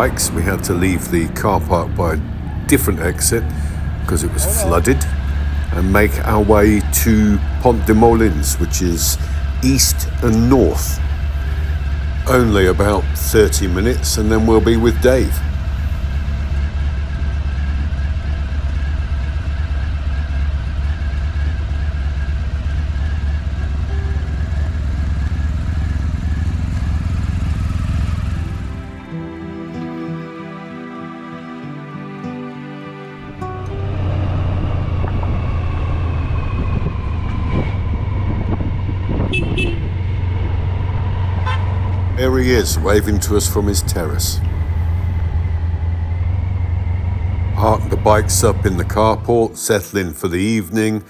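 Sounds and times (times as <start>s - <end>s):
wind and road noise: 0.0s - 29.2s, 33.3s - 49.8s
motorcycle engine cruising: 0.0s - 30.5s, 33.2s - 49.8s
brief higher tone: 23.5s - 25.5s.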